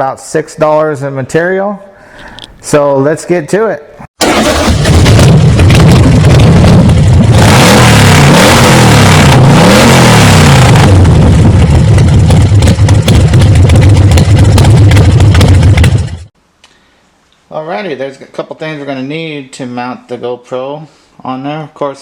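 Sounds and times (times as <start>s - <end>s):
motorcycle engine revving: 4.2s - 16.3s.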